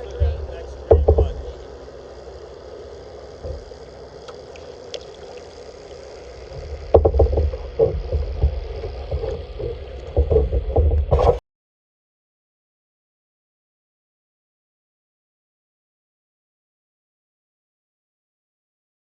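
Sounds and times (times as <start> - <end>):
water washing: 0.0 - 11.4
paddle knocks and splashes: 6.6 - 11.4.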